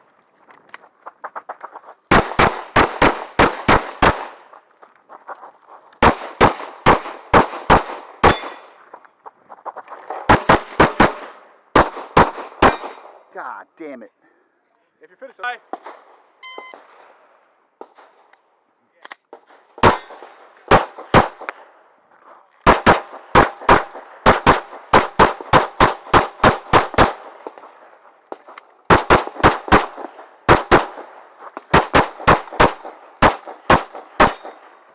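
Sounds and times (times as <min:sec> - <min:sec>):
pistol shots: 0:02.1 - 0:04.6, 0:05.2 - 0:09.0, 0:09.9 - 0:13.3, 0:19.0 - 0:21.8, 0:22.6 - 0:34.9.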